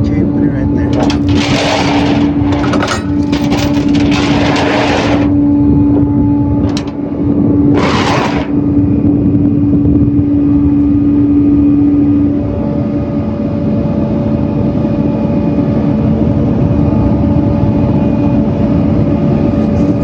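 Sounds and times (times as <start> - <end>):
truck engine droning: 0.0 - 9.0.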